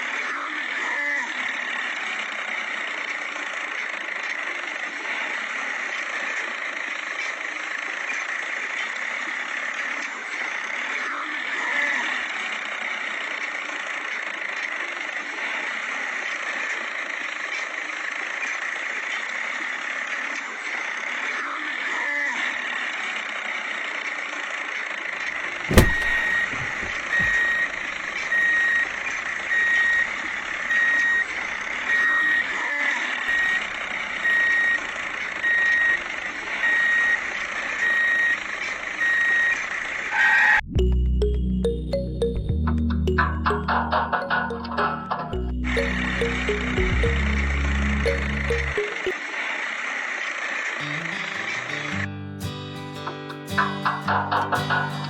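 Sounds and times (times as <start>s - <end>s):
reversing alarm beeping: 25.7s - 32.6s, 33.3s - 39.9s, 43.1s - 49.2s.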